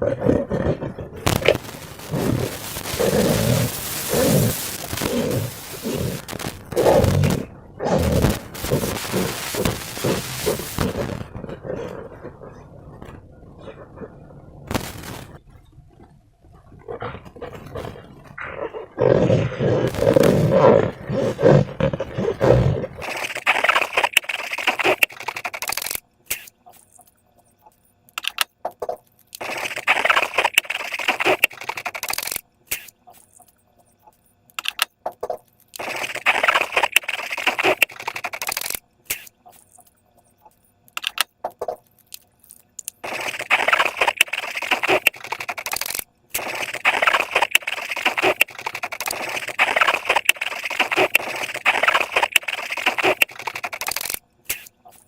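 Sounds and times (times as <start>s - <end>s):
slime crackling and clicking: 42.1s - 54.6s.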